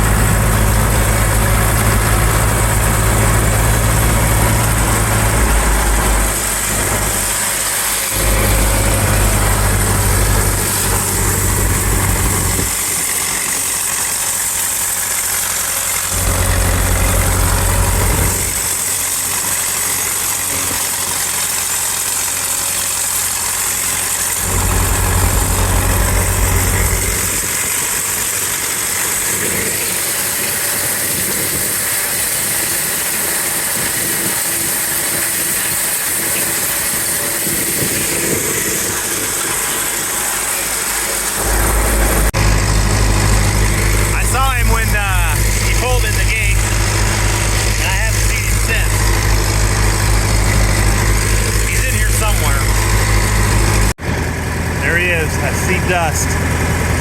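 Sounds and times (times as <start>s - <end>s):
heavy low rumble: 0.0s - 13.4s, 16.1s - 18.8s, 24.4s - 27.9s, 40.1s - 57.0s
engine idling: 0.0s - 57.0s.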